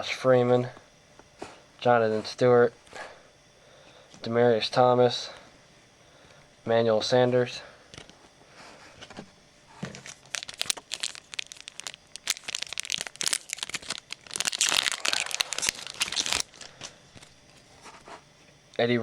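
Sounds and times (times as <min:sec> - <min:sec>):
wrapper tearing and crinkling: 0:10.0 - 0:17.3.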